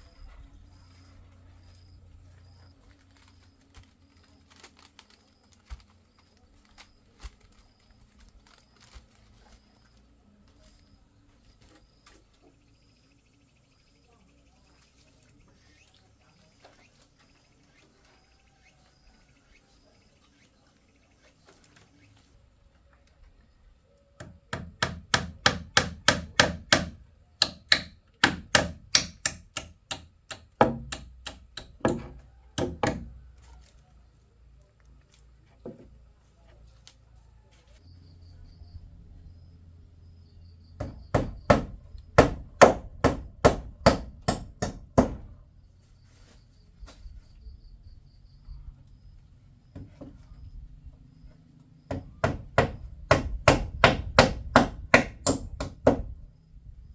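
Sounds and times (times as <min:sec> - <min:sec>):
sharp strikes on wood: 0:24.2 - 0:33.2, 0:40.8 - 0:45.4, 0:51.9 - 0:56.2.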